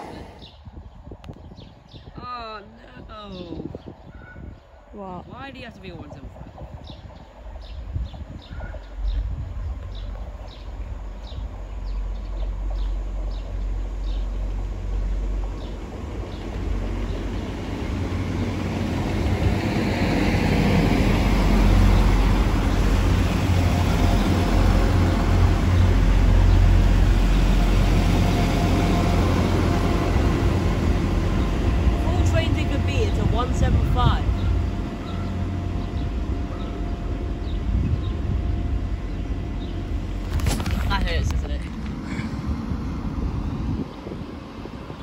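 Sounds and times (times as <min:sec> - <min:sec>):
train passing: 0:04.7 - 0:45.0.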